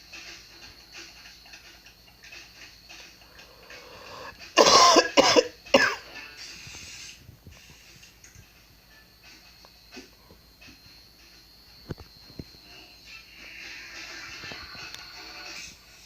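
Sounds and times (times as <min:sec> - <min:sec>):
man coughing: 0:04.6 - 0:06.0.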